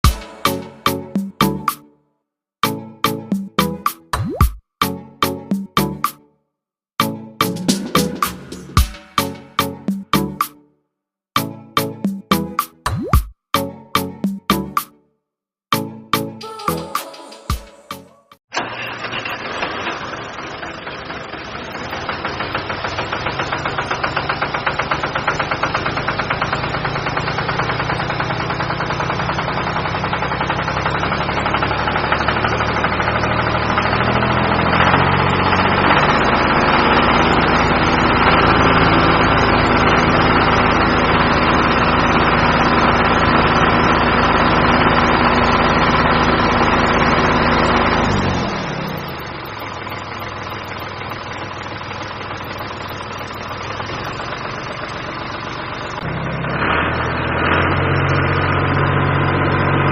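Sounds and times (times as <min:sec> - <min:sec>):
small engine running: 0:18.5 - 0:59.9.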